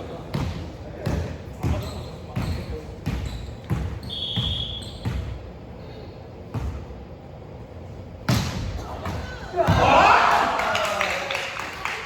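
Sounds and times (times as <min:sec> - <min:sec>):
ball bouncing on hard floor: 0:00.3 - 0:05.4.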